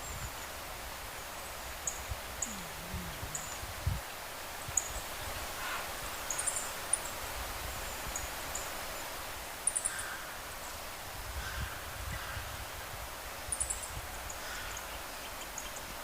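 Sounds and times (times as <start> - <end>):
rustling hiss: 0.0 - 16.0
small birds chirping: 1.4 - 3.7, 13.5 - 16.0.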